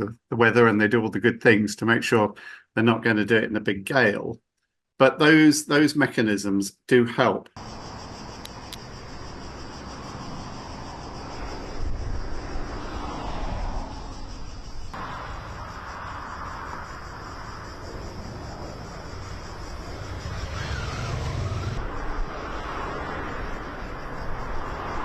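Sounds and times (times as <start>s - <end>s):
low outdoor rumble: 14.9s - 22.6s.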